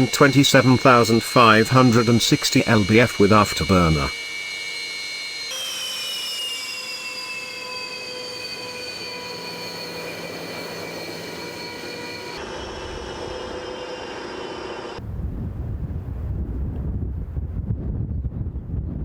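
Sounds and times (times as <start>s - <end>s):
jet engine whine: 0.0s - 17.6s
jet engine low rumble: 0.0s - 19.0s.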